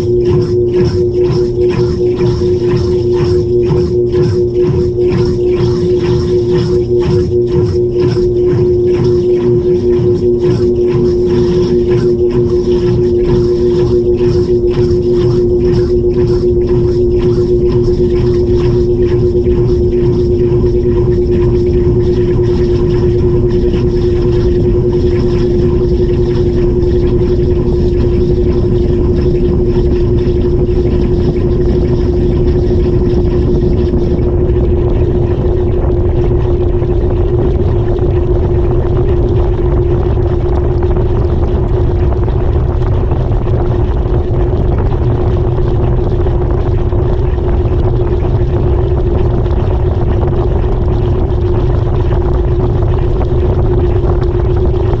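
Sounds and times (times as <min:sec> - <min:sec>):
washing machine running: 0:00.0 - 0:55.0.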